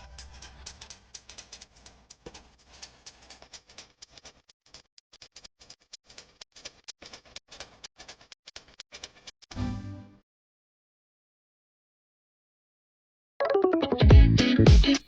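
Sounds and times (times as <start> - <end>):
rapid sharp ticks: 0.0 - 9.5.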